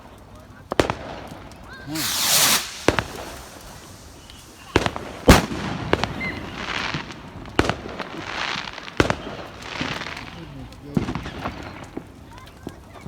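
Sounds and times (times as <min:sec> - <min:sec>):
fireworks crackling hiss: 0:00.0 - 0:13.0
fireworks bangs: 0:00.7 - 0:12.8.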